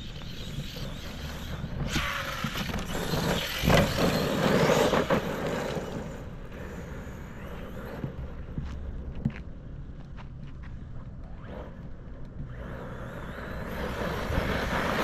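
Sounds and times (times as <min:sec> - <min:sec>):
rc truck electric motor: 0:00.0 - 0:08.5, 0:12.4 - 0:15.0
tyres on dirt: 0:00.0 - 0:15.0.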